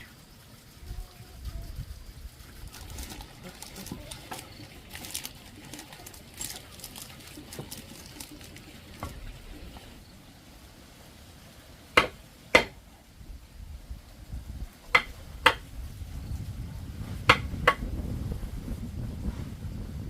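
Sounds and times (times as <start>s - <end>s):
low rumbling background: 0.0s - 20.0s
hammer strikes: 12.0s - 12.8s.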